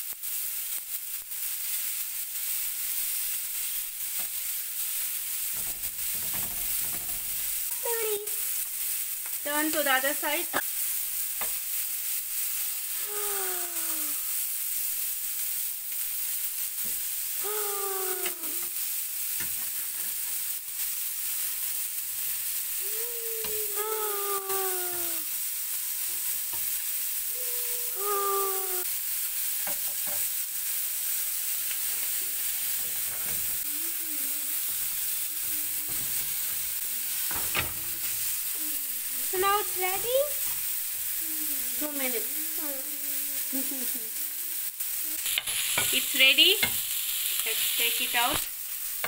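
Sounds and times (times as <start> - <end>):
prawns sizzling in hot oil: 0.0 - 49.0.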